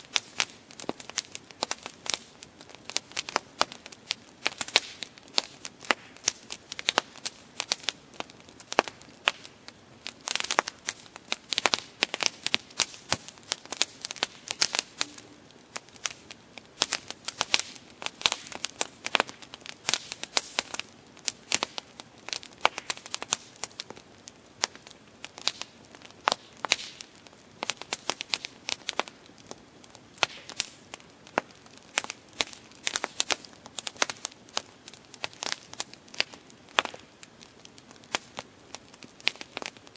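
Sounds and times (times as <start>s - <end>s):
campfire wood crackling and popping: 0.0s - 39.9s.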